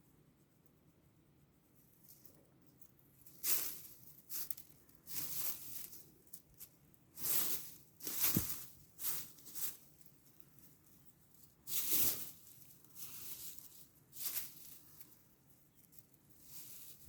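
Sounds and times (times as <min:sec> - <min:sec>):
cat scratching at grass: 0:07.2 - 0:09.9, 0:11.6 - 0:15.1.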